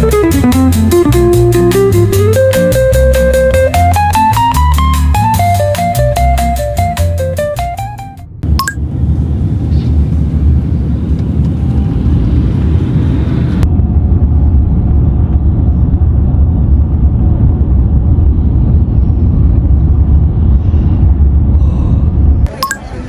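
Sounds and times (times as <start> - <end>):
loud low rumbling: 8.3 - 23.0.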